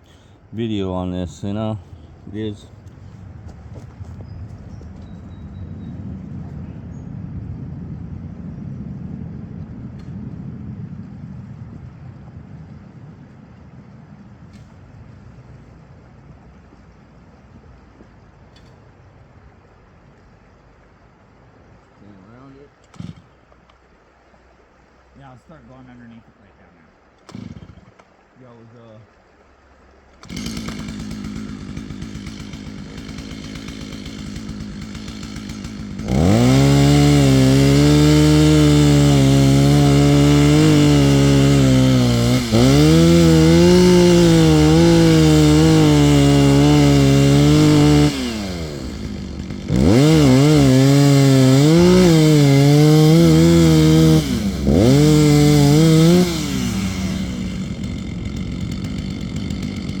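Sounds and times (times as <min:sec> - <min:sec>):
chainsaw cutting wood: 0:22.8 - 0:23.8, 0:27.2 - 0:28.2, 0:30.1 - 1:00.0.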